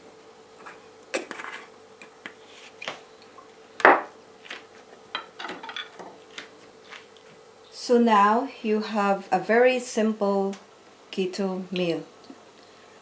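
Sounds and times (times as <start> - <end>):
dishes and cutlery clinking: 5.2 - 6.0.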